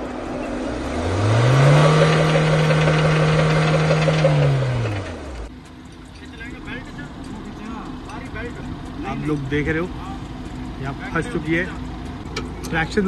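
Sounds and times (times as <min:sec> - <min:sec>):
car engine revving: 0:00.0 - 0:05.5.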